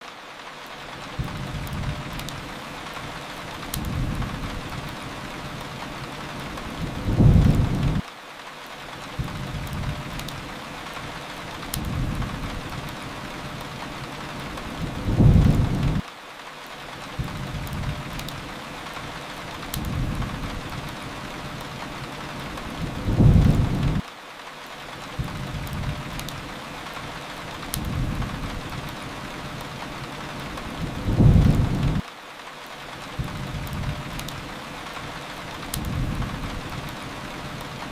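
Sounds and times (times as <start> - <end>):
fire crackles: 0.0 - 37.9
steady rain: 0.0 - 37.9
low rumbles: 30.8 - 32.0.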